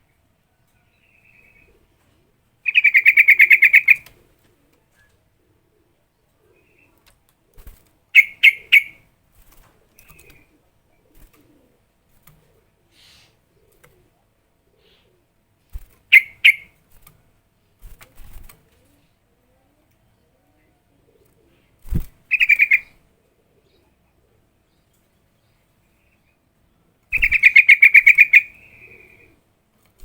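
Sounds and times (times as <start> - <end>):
bulbul calling in sharp notes: 8.2 - 9.0, 16.1 - 16.7, 22.3 - 22.9, 27.1 - 29.1.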